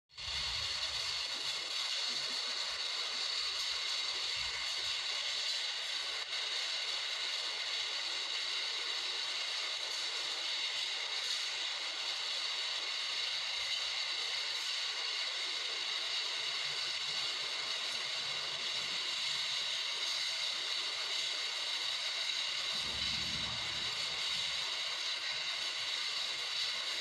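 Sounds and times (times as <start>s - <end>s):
windstorm rushing: 22.7s - 24.6s.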